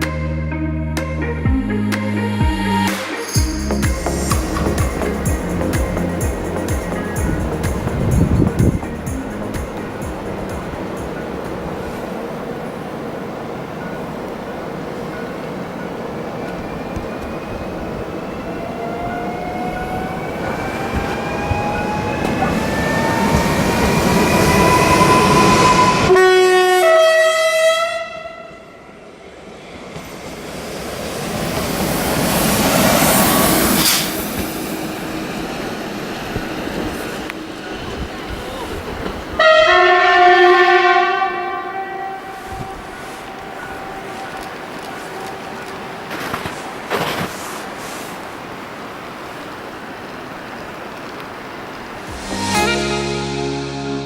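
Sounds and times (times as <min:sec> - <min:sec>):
rail noise: 0:02.9 - 0:54.0
train horn blast: 0:24.4 - 0:29.0, 0:39.4 - 0:47.2, 0:52.1 - 0:54.0.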